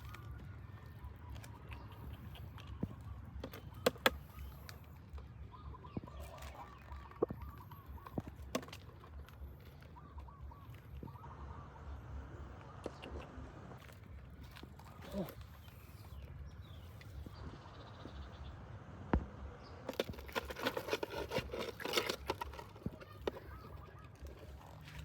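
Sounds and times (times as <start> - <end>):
steady low rumble: 6.9 - 20.3.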